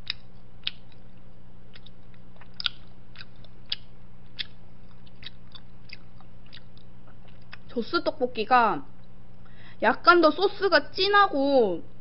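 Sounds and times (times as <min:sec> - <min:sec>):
chewing with wet mouth clicks: 0:00.0 - 0:07.7.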